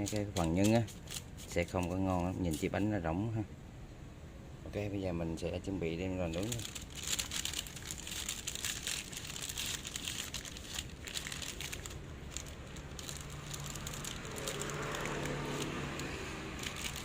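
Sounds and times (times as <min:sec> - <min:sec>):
steady low hum: 0:00.0 - 0:17.0
dough crinkling: 0:06.2 - 0:17.0.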